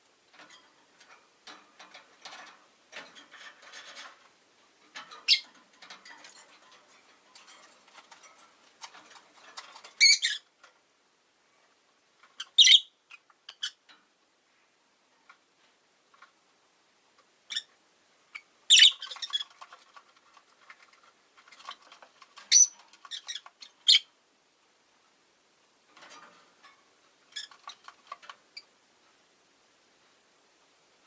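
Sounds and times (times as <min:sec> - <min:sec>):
soft clicking and scratching: 0:00.3 - 0:10.8, 0:15.0 - 0:16.5, 0:18.9 - 0:23.9, 0:25.8 - 0:29.2
lovebirds chirping shrilly: 0:12.4 - 0:12.9, 0:18.7 - 0:19.5.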